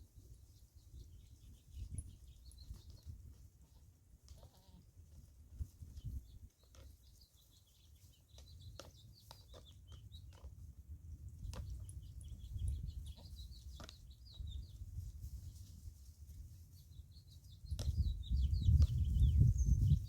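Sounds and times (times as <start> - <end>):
wind rumbling on microphone: 0.0 - 3.5, 5.1 - 6.5, 10.8 - 16.5, 17.2 - 20.0
birds chirping: 0.4 - 4.4, 5.6 - 15.7, 16.7 - 20.0.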